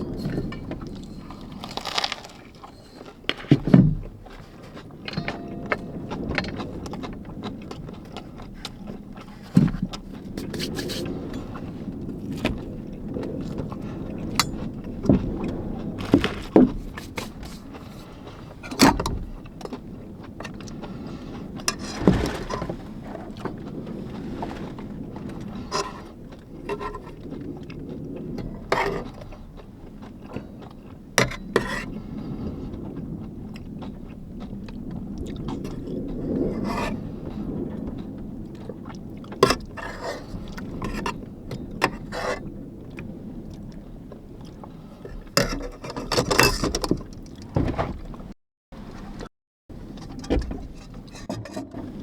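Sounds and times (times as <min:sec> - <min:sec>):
steady low rumble: 0:04.0 - 0:28.7.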